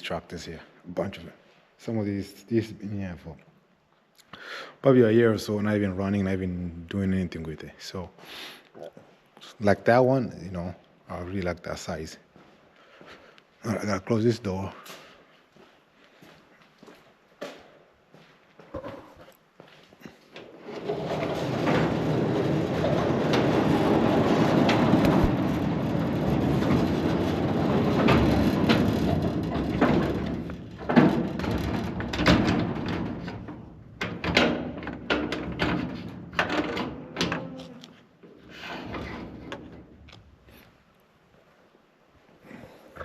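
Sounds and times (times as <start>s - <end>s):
sliding door rumbling on track: 20.5s - 37.4s, 38.5s - 40.0s
door clanking and knocking: 20.6s - 37.6s.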